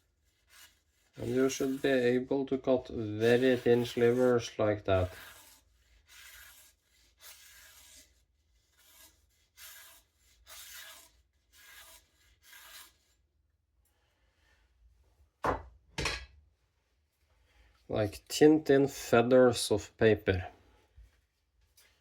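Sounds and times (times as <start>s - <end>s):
knife slicing paper: 0.2s - 2.0s, 3.0s - 13.2s.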